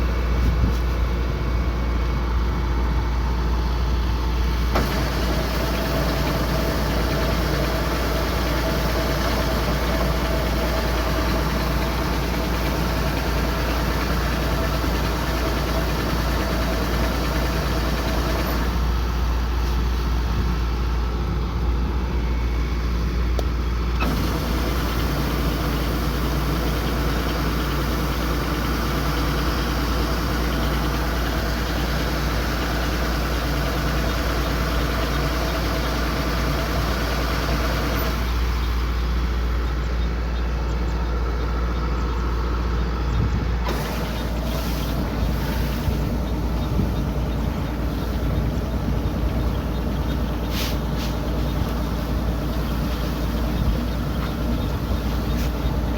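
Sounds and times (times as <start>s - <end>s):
combine harvester engine rumbling: 0.0s - 55.9s
machinery hiss: 43.7s - 46.3s, 50.4s - 51.4s.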